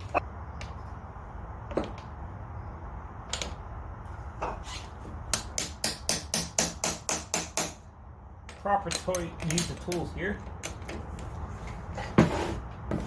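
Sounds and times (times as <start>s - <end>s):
hand tool tapping on metal: 8.5s - 10.8s.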